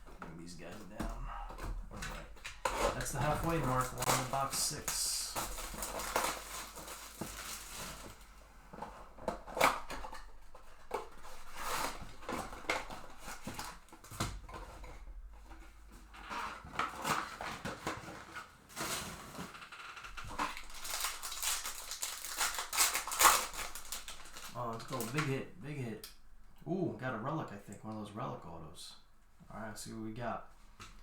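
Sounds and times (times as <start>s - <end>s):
wrappers crinkling: 0.0s - 14.2s, 14.8s - 25.4s
wrappers tearing: 0.8s - 8.3s, 16.1s - 25.3s.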